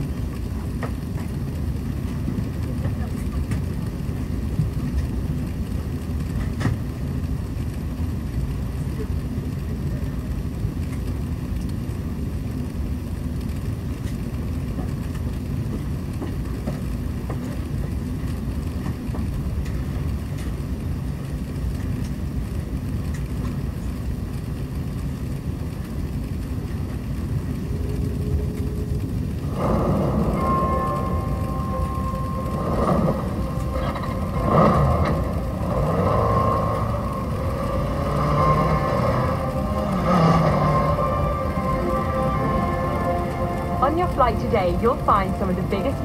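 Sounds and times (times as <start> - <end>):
jet engines and airflow rumbling: 0.0 - 46.0.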